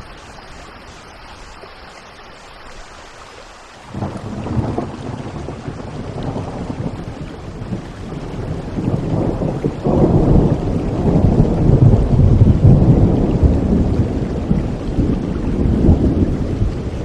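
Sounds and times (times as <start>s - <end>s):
steady rain: 0.0s - 17.0s
rolling thunder: 3.9s - 17.0s.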